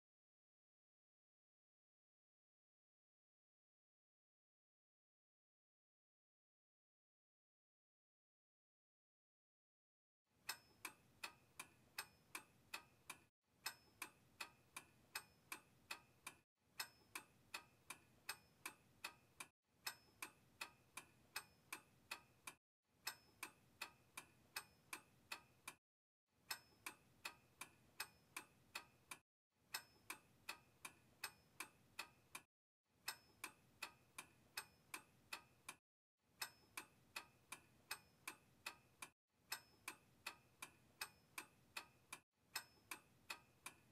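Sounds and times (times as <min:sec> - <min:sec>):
clock ticking: 0:10.4 - 0:25.8, 0:26.4 - 0:35.8, 0:36.4 - 0:43.9.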